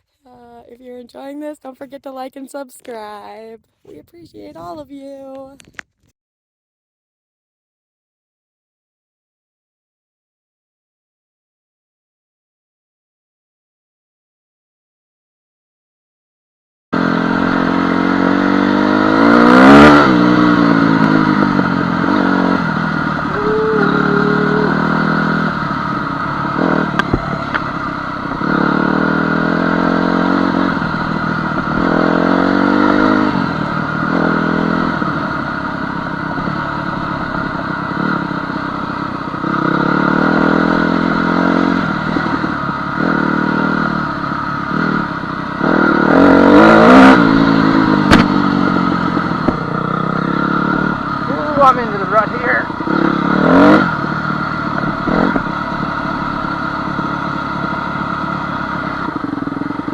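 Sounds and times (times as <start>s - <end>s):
dirt bike engine revving: 17.0s - 59.9s.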